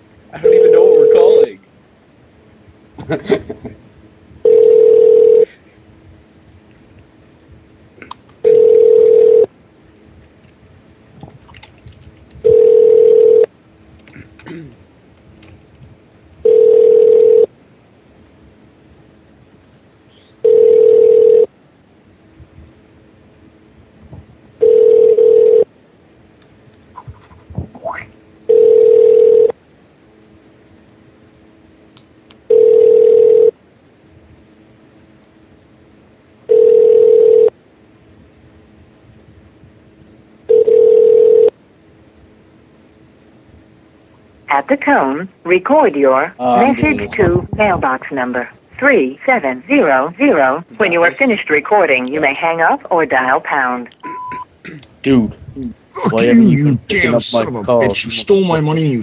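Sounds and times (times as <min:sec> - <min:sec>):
telephone ringback tone: 0:00.4 - 0:01.5, 0:04.4 - 0:05.5, 0:08.4 - 0:09.5, 0:12.4 - 0:13.5, 0:16.4 - 0:17.5, 0:20.4 - 0:21.5, 0:24.6 - 0:25.7, 0:28.5 - 0:29.6, 0:32.5 - 0:33.6, 0:36.5 - 0:37.6, 0:40.5 - 0:41.5.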